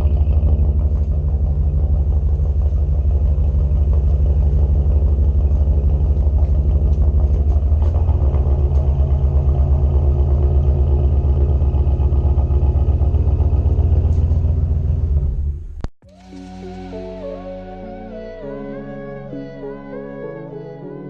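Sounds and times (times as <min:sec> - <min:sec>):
dirt bike engine running: 0:00.0 - 0:15.8.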